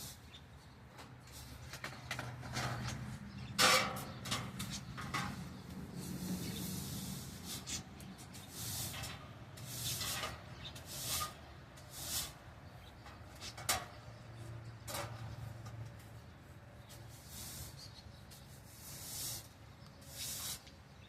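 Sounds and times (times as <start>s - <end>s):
broom sweeping floor: 0.0s - 0.3s, 4.6s - 12.5s, 16.9s - 20.9s.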